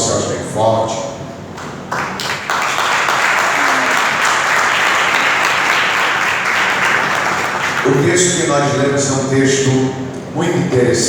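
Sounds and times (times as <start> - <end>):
congregation applauding: 1.5 - 8.4.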